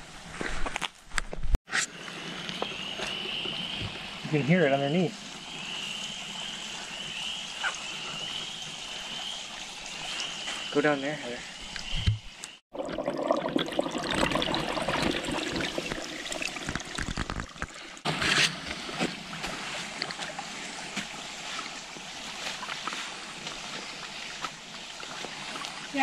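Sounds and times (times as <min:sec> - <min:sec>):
water trickling underground: 0:02.0 - 0:26.0.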